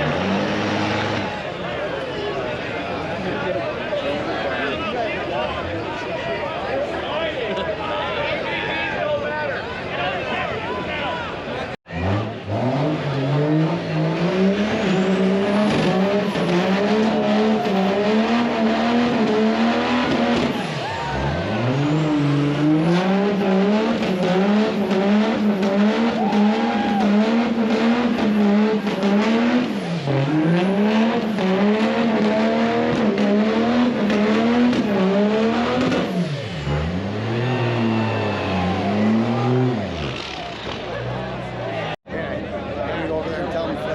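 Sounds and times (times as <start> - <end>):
truck engine revving high: 0.0 - 1.7, 11.9 - 42.0.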